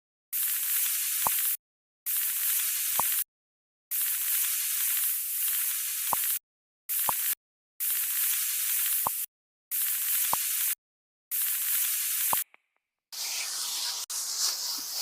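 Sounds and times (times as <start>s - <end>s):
steady hiss: 13.2s - 15.0s.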